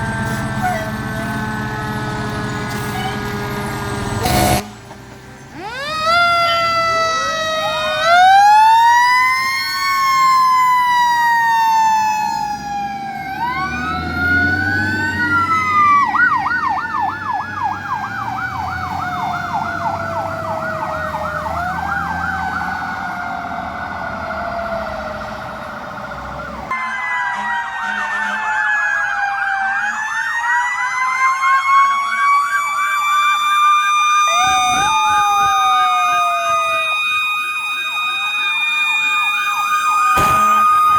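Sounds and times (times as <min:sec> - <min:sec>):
fire engine sirens wailing: 0:00.0 - 0:40.9.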